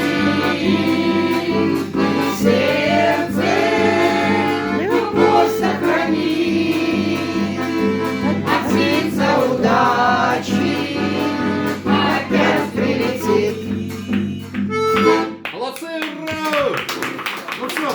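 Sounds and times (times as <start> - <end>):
voices singing sustained notes: 0.0 - 7.8, 8.4 - 14.2
low instrumental backing: 0.0 - 15.4.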